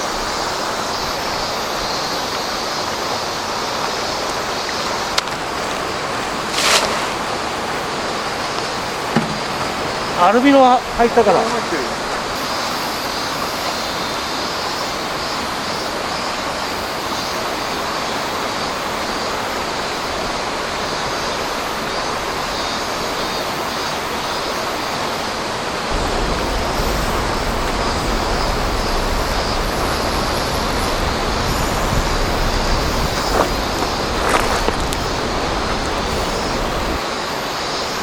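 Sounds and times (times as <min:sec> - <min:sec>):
flowing water: 0:00.0 - 0:38.0
faint knocks: 0:09.1 - 0:09.8
low rumble: 0:25.9 - 0:37.0.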